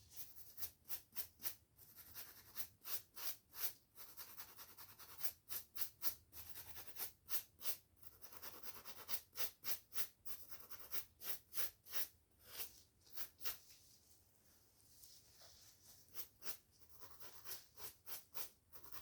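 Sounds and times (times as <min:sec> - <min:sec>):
brush scratching hair and scalp: 0:10.8 - 0:19.0.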